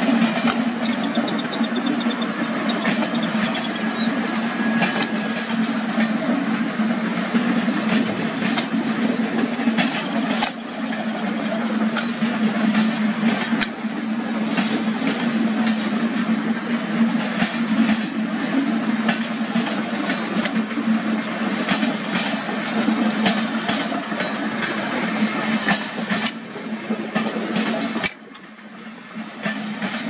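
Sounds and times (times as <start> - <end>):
train wheels rumbling on rail: 0.0 - 30.0
wheels clicking over rail joints: 0.0 - 30.0.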